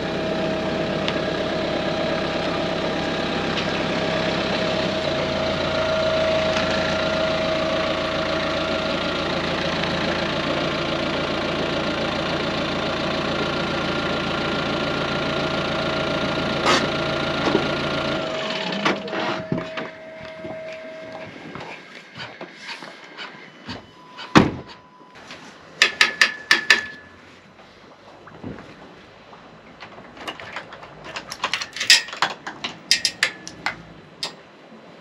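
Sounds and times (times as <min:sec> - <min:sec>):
engine running: 0:00.0 - 0:23.8, 0:26.8 - 0:35.0
knocks and clatter: 0:29.7 - 0:34.4.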